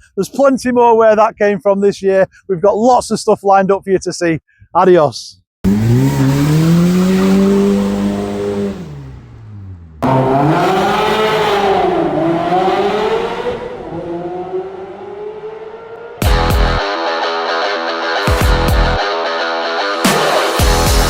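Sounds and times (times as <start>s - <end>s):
sports car engine revving: 5.7s - 16.8s
music: 16.2s - 21.0s.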